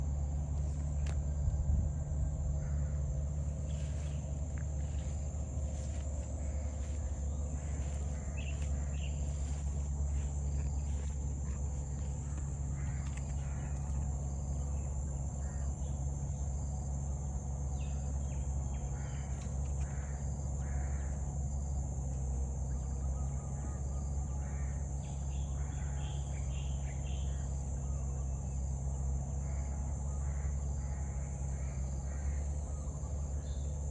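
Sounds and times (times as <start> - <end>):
low rumble: 0.0 - 18.7
insect drone: 0.0 - 33.9.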